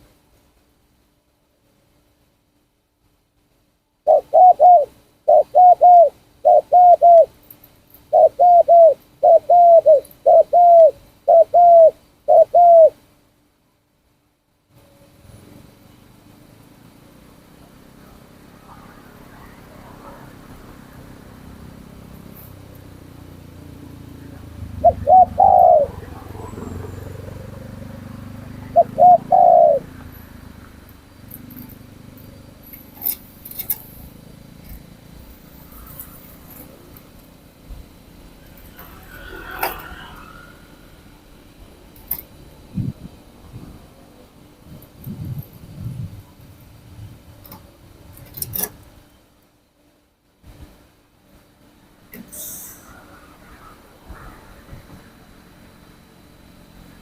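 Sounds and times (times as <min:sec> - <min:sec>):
dove cooing: 0:04.1 - 0:07.4, 0:08.1 - 0:13.0, 0:23.3 - 0:33.8, 0:38.6 - 0:40.6.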